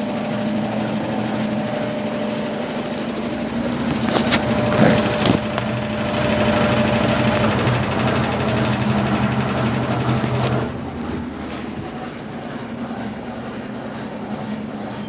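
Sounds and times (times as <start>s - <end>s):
washing machine clicks: 0.0s - 13.2s
washing machine motor hum: 0.0s - 15.0s.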